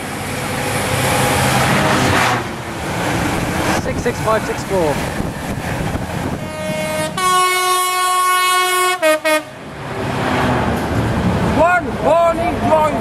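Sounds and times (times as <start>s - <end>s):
passing train running noise: 0.0s - 13.0s
train horn: 6.4s - 9.6s.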